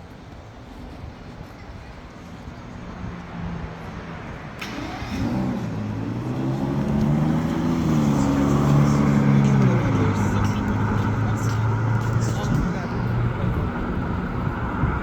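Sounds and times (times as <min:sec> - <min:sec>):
car engine accelerating: 0:04.6 - 0:15.0.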